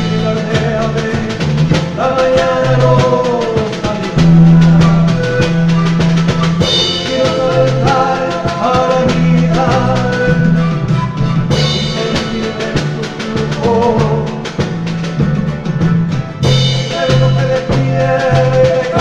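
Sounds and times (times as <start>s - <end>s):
folk band playing: 0.0s - 19.0s
steady drum beat: 0.0s - 19.0s.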